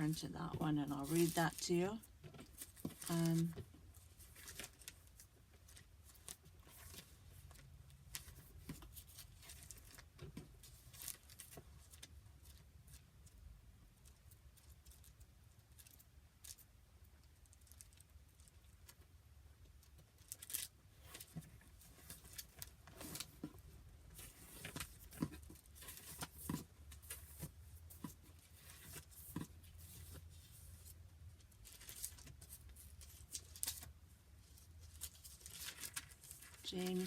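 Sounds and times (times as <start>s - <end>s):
paper pages turning and rustling: 0.0s - 13.0s, 20.3s - 37.0s.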